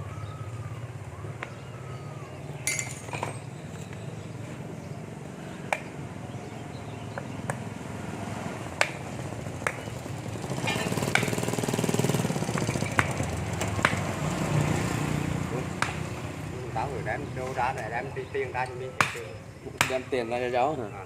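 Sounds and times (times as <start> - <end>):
hand tools tapping metal: 2.6 - 3.9, 10.6 - 11.6.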